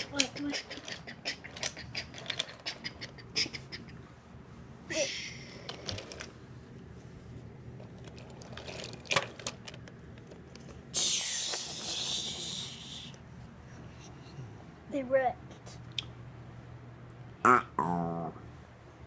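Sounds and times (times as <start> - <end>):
plastic pieces clicking and knocking: 0.0 - 3.2, 8.0 - 10.6
hissing rush: 10.9 - 13.2.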